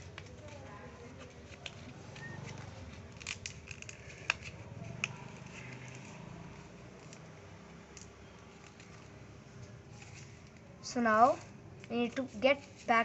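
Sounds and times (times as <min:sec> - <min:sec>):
paper being folded and creased: 0:00.0 - 0:07.2, 0:07.9 - 0:13.0.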